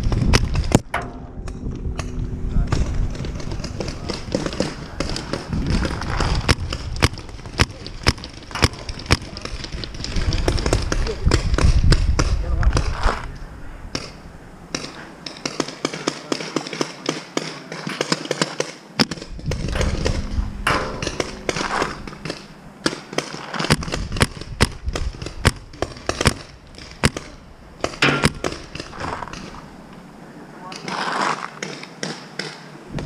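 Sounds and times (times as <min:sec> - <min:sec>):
paintball markers firing: 0:14.8 - 0:20.2, 0:22.2 - 0:29.5.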